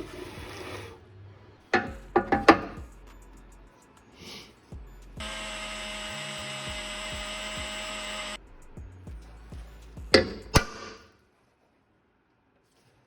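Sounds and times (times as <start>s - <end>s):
power drill running: 5.2s - 8.4s.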